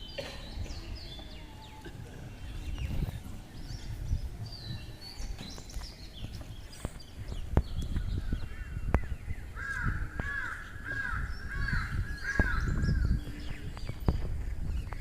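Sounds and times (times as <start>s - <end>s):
high bird chirps: 2.4s - 15.0s
bird cawing: 9.6s - 12.7s.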